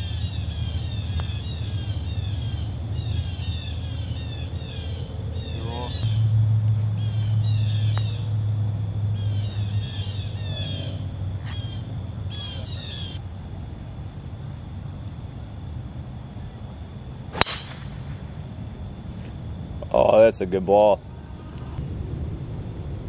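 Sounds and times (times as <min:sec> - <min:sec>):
birds chirping: 0:00.0 - 0:13.2
low rumble: 0:00.0 - 0:14.0
steady high whine: 0:00.0 - 0:23.0.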